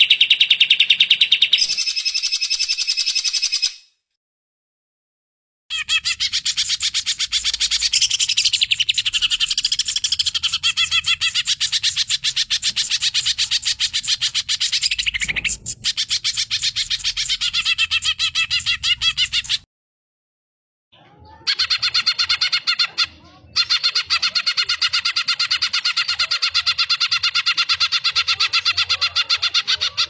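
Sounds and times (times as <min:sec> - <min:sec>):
bird singing fast high notes: 0:05.8 - 0:19.6.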